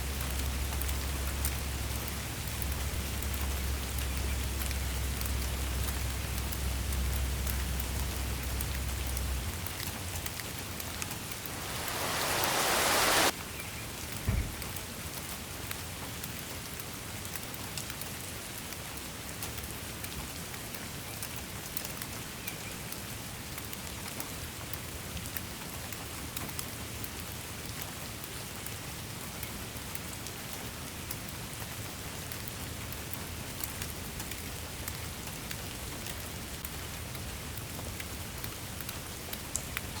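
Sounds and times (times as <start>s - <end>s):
rain patter: 0.0s - 40.0s
rush of noise: 11.1s - 13.3s
low rumble: 11.3s - 13.3s
short low thump: 14.3s - 14.8s.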